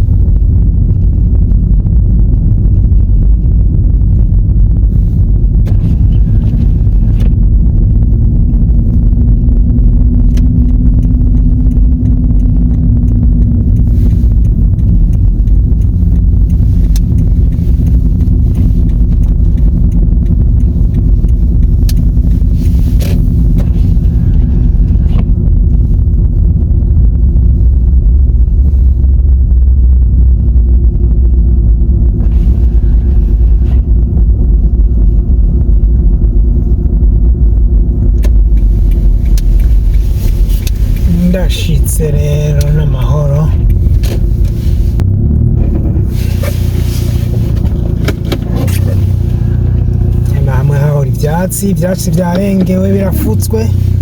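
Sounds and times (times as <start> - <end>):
car engine and tyres rumbling: 0.0 - 54.0
sharp clicks: 6.8 - 24.1, 38.0 - 44.6.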